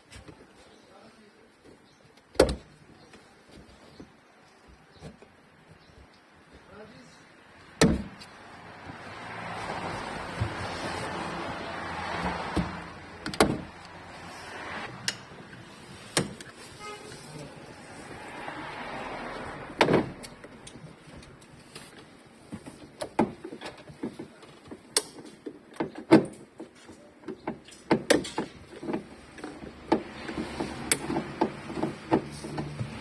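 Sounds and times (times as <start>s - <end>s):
clicks taps and knocks: 19.8s - 33.0s.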